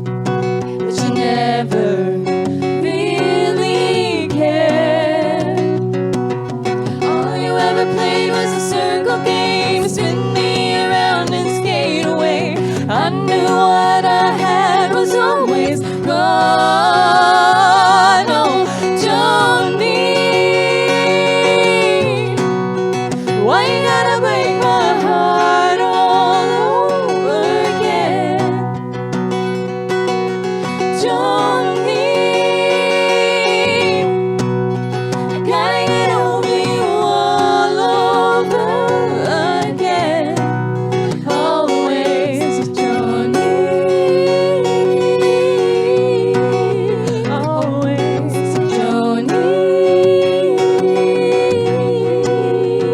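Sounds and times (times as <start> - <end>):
acoustic guitar: 0.0 - 52.9
voices singing in harmony: 0.0 - 52.9.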